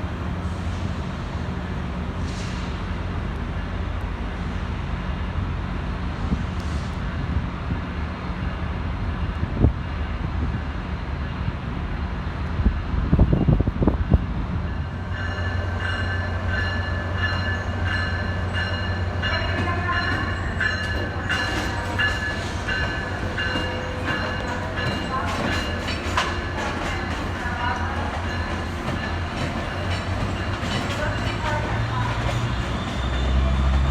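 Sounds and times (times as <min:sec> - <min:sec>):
train rumbling: 0:00.0 - 0:33.9
train clunks: 0:14.7 - 0:33.9.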